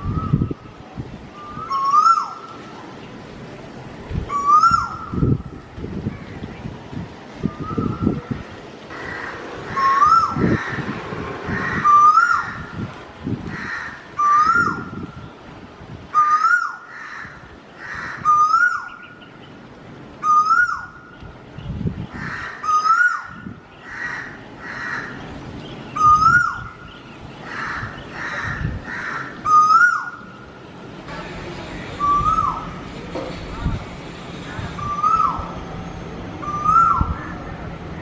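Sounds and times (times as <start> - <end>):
bird whistled call: 4.3 - 5.2, 7.5 - 8.2, 32.0 - 32.7, 34.8 - 35.5, 36.4 - 37.2.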